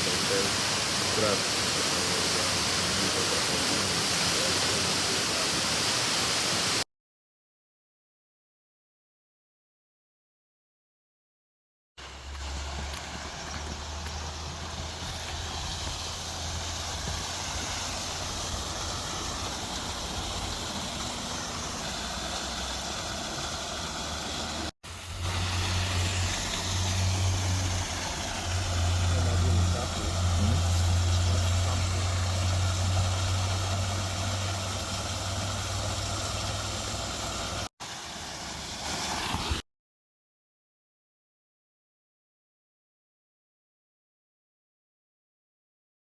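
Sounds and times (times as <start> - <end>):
waterfall roar: 0.0 - 6.8, 12.1 - 39.3.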